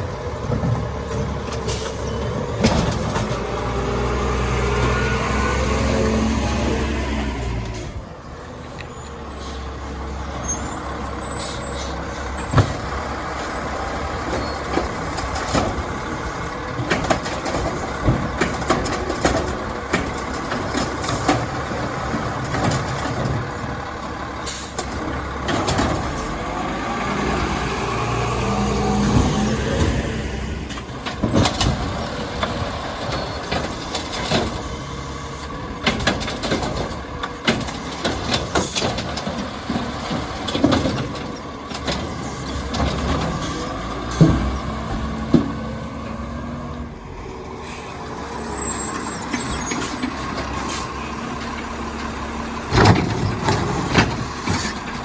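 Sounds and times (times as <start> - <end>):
garbage truck engine running: 0.0 - 55.0
clanks and knocks: 0.4 - 3.6, 14.2 - 23.7, 24.8 - 26.4, 30.7 - 34.7, 35.8 - 45.8, 52.7 - 55.0.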